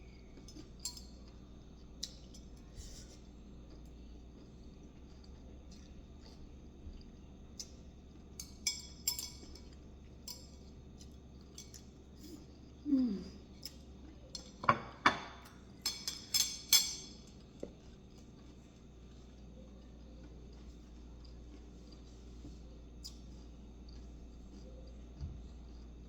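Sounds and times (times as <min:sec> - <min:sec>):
cutlery and dishes clinking: 0:14.4 - 0:17.2.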